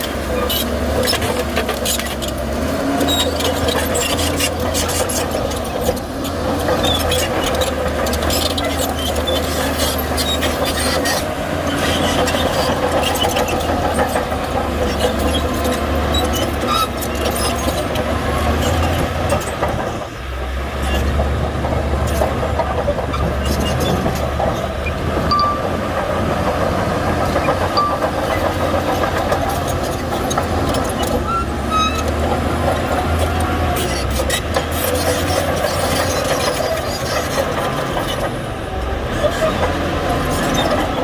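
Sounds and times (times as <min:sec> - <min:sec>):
bulldozer diesel engine running: 0:00.0 - 0:41.0.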